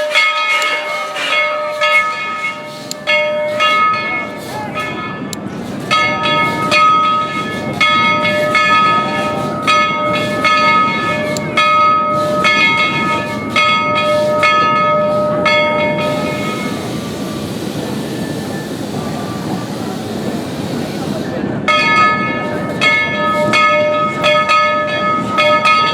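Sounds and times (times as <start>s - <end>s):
locomotive bell ringing: 0.0s - 25.9s
moving train rumble: 0.0s - 25.9s.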